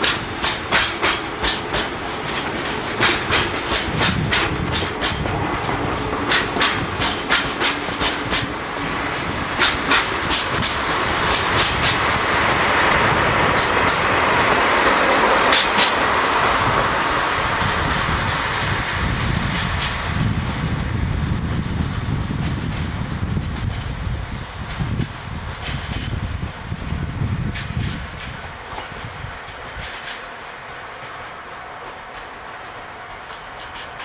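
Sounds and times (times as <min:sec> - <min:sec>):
wheels clicking over rail joints: 0:00.0 - 0:16.9, 0:24.6 - 0:34.0
steady rushing noise: 0:00.0 - 0:34.0.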